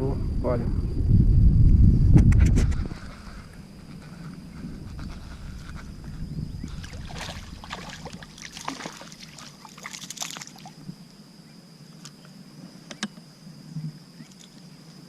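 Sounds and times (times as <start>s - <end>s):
water sloshing: 4.9s - 10.9s.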